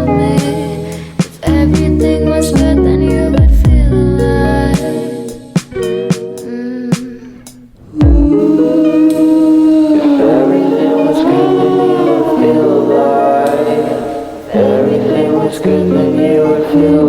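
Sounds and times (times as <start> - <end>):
choir singing sustained chords: 0.0 - 3.2, 8.3 - 17.0.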